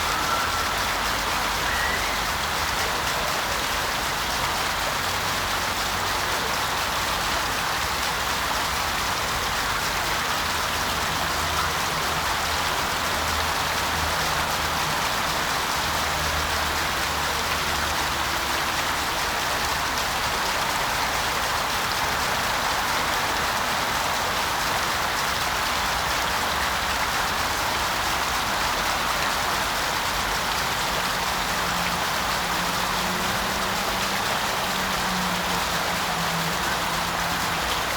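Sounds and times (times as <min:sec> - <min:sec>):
waterfall splashing into pond: 0:00.0 - 0:37.9.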